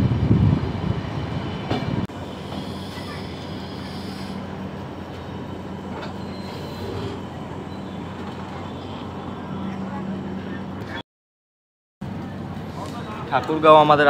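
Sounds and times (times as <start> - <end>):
train wheels on rails: 0.0 - 9.3.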